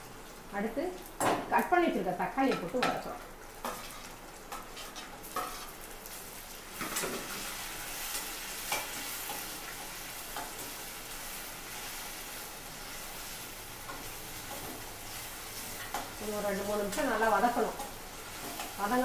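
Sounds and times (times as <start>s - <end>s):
onions sizzling in oil: 0.0s - 19.0s
metal spatula scraping a pan: 3.6s - 5.9s.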